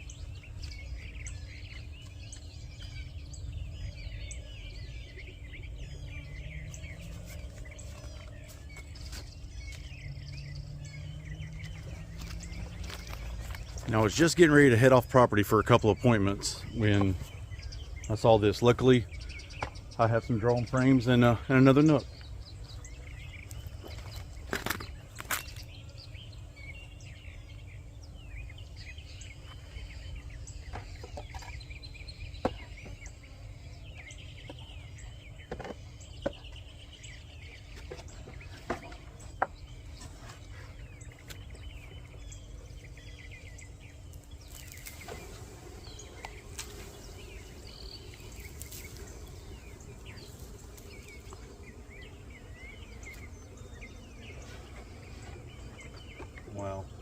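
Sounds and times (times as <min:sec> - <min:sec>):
small birds chirping: 0:00.0 - 0:57.0
steady low hum: 0:36.8 - 0:57.0.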